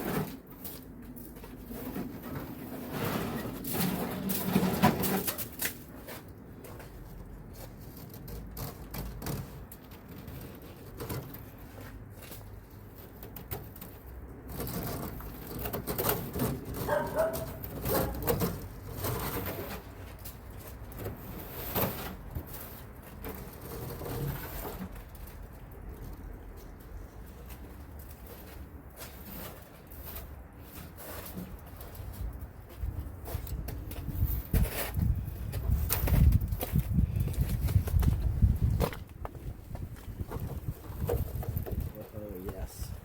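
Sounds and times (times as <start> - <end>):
scraping and brushing snow off car: 0.0 - 9.6, 21.0 - 25.0, 28.2 - 32.3, 34.5 - 35.3.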